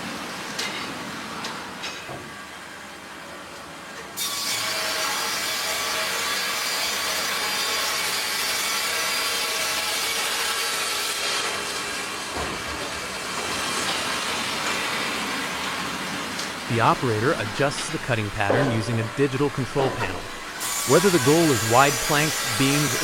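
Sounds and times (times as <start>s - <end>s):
bandsaw cutting log: 4.2s - 11.8s, 16.7s - 23.0s.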